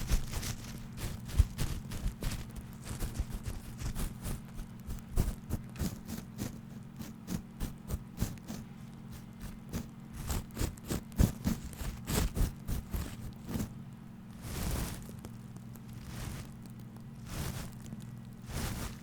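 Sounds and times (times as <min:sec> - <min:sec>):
fast tapping and scratching: 0:00.0 - 0:13.8
low steady hum: 0:00.0 - 0:19.0.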